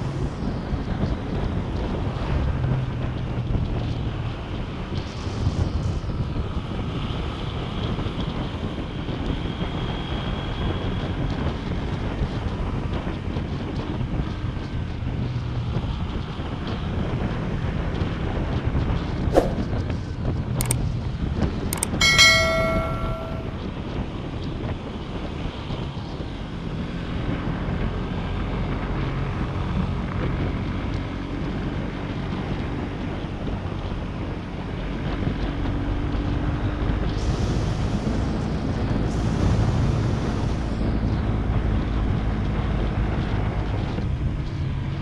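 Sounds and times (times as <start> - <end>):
wind rushing over microphone: 18.4 - 20.8
sharp clicks: 21.8 - 22.0
short metallic ringing tone: 21.8 - 23.7.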